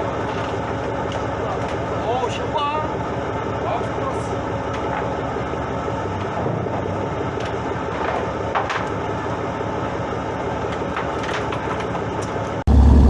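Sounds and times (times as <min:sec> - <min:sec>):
boat engine running: 0:12.7 - 0:13.0.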